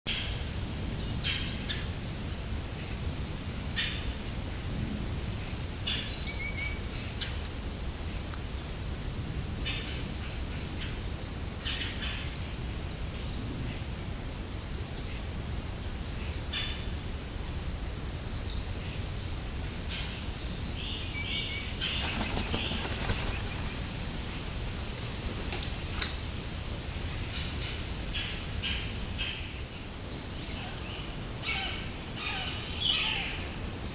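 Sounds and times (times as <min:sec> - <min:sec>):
flapping wingbeats: 0:21.8 - 0:24.5, 0:25.1 - 0:26.2.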